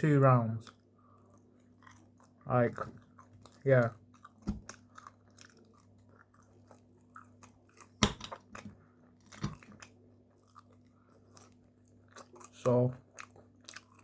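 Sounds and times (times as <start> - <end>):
chewing food: 0.6 - 14.0.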